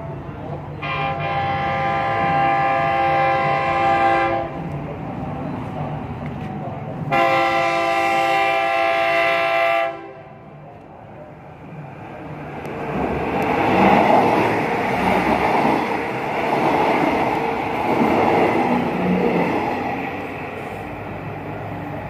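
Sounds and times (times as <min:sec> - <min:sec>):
train wheels on rails: 0:00.0 - 0:22.0
train horn blast: 0:00.8 - 0:04.6, 0:07.1 - 0:10.4.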